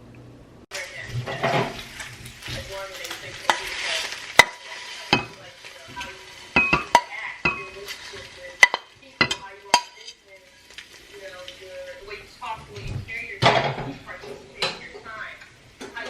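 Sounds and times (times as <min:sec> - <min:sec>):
metal utensil scraping a dish: 0:01.2 - 0:05.4
utensil clinking against dish: 0:06.0 - 0:10.2.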